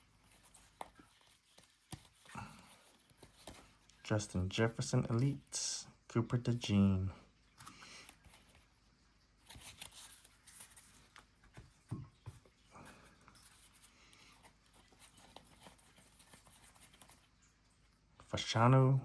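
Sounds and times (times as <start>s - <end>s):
trading cards rustling: 0.0s - 5.7s, 9.4s - 17.4s.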